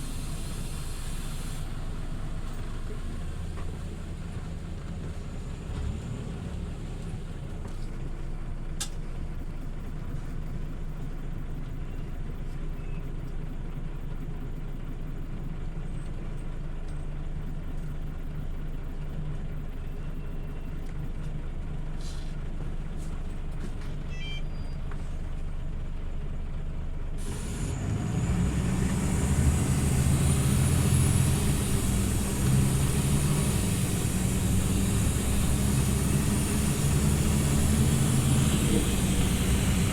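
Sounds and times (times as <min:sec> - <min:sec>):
bus engine from inside: 0:00.0 - 0:39.9.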